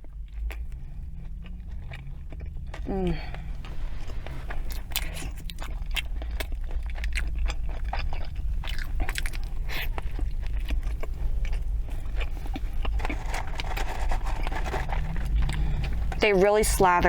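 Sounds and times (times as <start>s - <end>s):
person chewing food: 0.0s - 16.2s
steady low hum: 0.0s - 17.0s.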